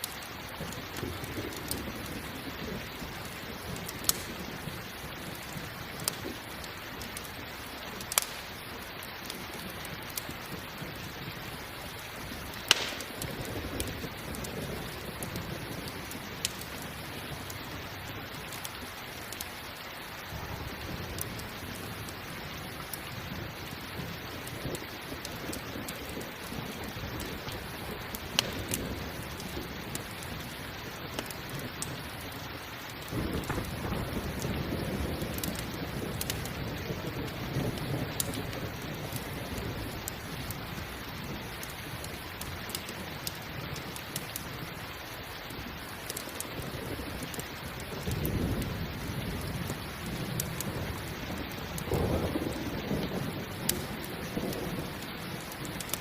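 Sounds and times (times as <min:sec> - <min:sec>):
campfire crackling: 0:00.0 - 0:56.0
steady rain: 0:00.0 - 0:56.0
rolling thunder: 0:00.5 - 0:06.5, 0:12.2 - 0:17.5, 0:33.0 - 0:42.1, 0:46.6 - 0:55.9.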